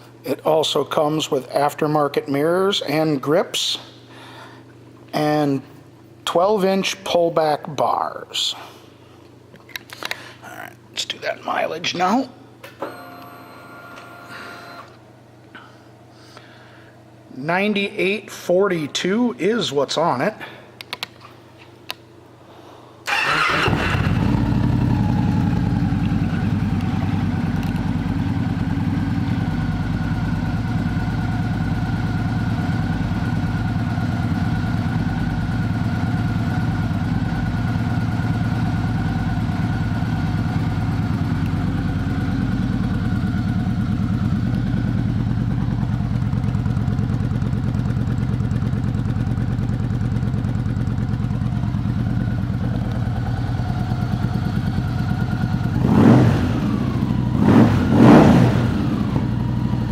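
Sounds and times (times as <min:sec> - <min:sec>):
motorcycle engine idling: 0:23.1 - 0:59.9.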